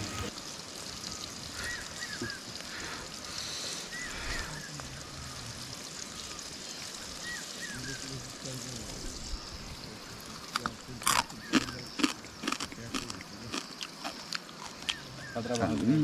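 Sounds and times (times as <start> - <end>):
small animal chirping: 6.3 - 16.0.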